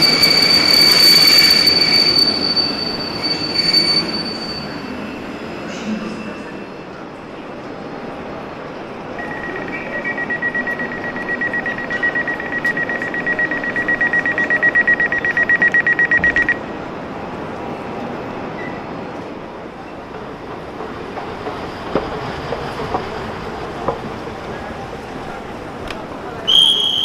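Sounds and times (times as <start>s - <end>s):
railway platform rumble: 0.0s - 27.0s
rapid high warning beeps: 9.2s - 16.6s.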